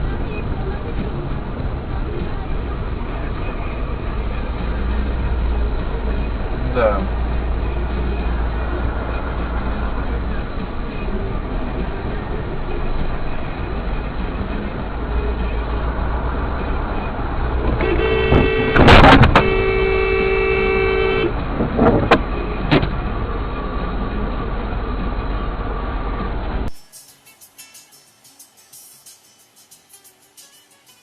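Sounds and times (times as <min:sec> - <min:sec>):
vehicle engine and road rumble: 0:00.0 - 0:26.8
vehicle horn held: 0:17.8 - 0:21.4.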